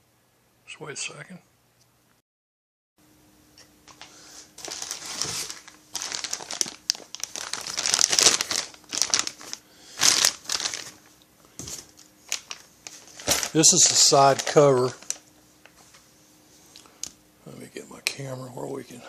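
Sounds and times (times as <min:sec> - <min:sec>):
faint steady hum: 0:03.0 - 0:19.0
packaging crinkling and rustling: 0:03.9 - 0:16.1.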